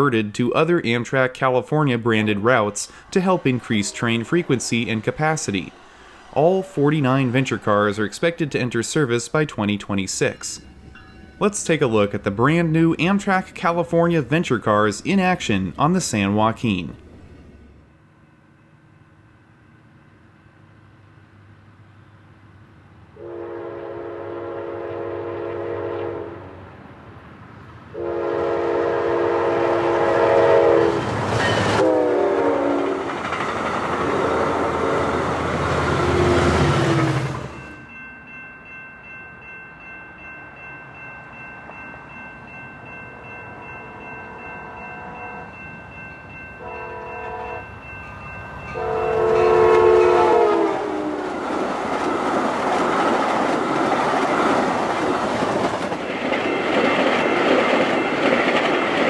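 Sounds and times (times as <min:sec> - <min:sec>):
train cars rushing and clattering: 0:00.0 - 0:17.9, 0:24.2 - 0:59.0
train horn blasts: 0:23.2 - 0:26.7, 0:27.9 - 0:31.0, 0:31.8 - 0:33.0, 0:34.0 - 0:36.7, 0:46.6 - 0:47.8, 0:48.7 - 0:51.2.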